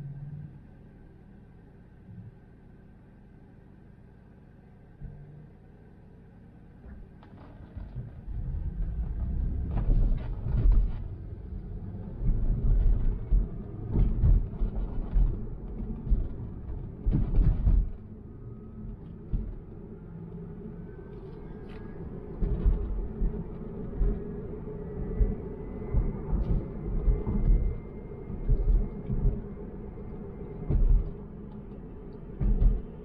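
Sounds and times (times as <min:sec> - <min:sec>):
low tyre rumble: 0:00.0 - 0:33.0.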